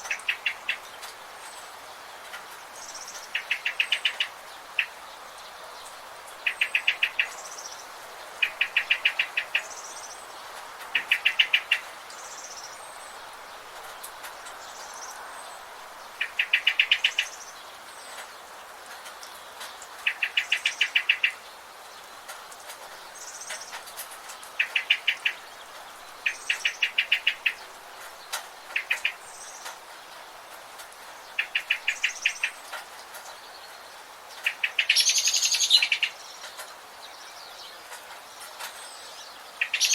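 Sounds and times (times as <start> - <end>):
steady background hiss: 0.0 - 39.9
faint high bird chirps: 39.0 - 39.9.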